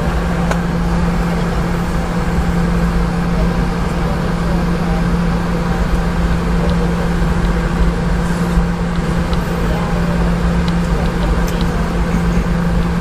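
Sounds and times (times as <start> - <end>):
cabin air rush: 0.0 - 13.0
jet engines humming: 0.0 - 13.0.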